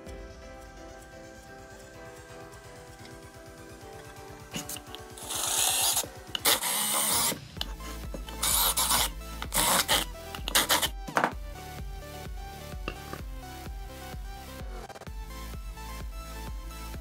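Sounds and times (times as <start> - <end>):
background music with steady beat: 0.0 - 17.0
cordless drill boring into wood: 4.6 - 10.9.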